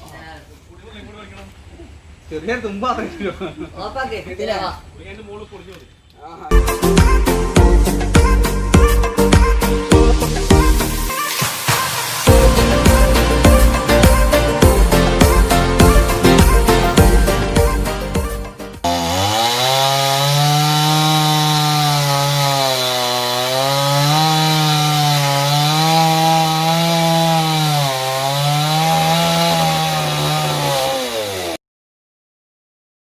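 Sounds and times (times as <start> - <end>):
chainsaw cutting wood: 18.8 - 31.6.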